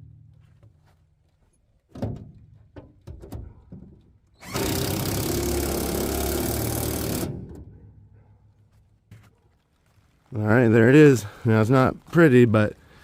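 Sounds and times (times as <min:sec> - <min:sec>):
power drill driving bolts: 0:04.3 - 0:07.7.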